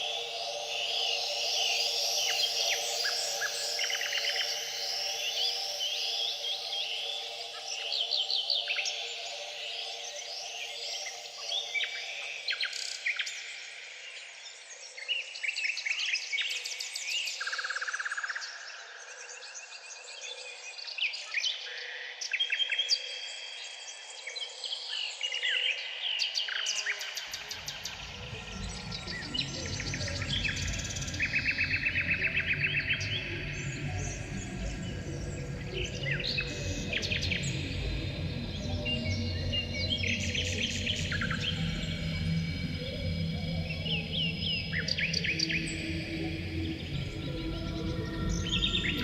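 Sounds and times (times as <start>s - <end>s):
songbirds singing: 23.7s - 49.0s
steady low hum: 27.6s - 49.0s.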